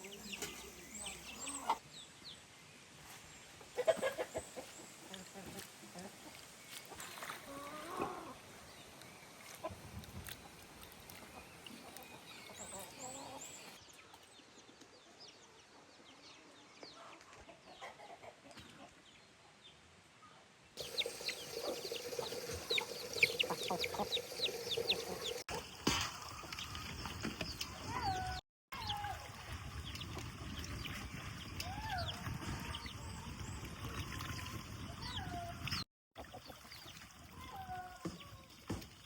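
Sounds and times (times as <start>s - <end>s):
chickens clucking: 0.1s - 1.8s, 3.6s - 8.4s, 20.8s - 25.6s
chicks cheeping: 20.8s - 25.5s.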